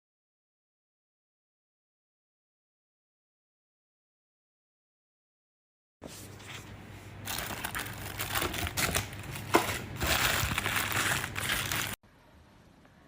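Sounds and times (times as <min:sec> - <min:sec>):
plastic packaging crinkling: 0:07.2 - 0:12.0.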